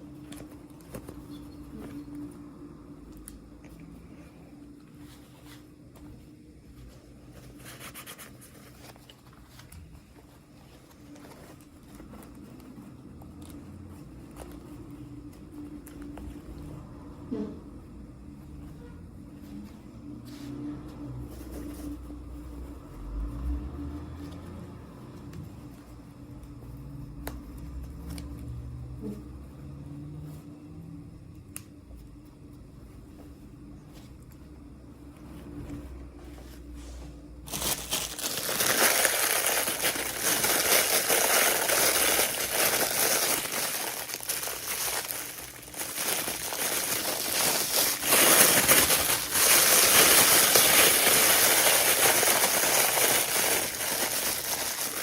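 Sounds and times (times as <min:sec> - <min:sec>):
faint steady hum: 0:00.0 - 0:55.0
packaging rustling: 0:37.4 - 0:55.0.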